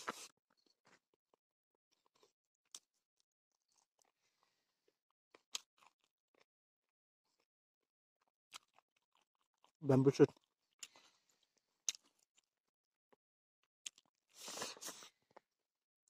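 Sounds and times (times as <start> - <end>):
person chewing: 0.0 - 6.5, 7.2 - 7.5, 8.2 - 12.6, 13.8 - 15.4.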